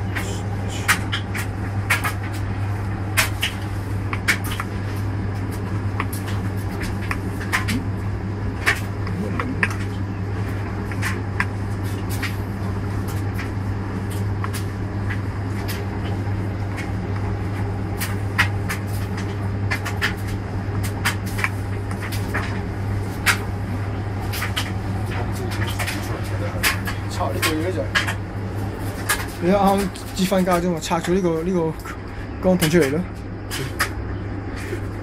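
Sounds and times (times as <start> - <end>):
washing machine running: 0.0 - 35.0.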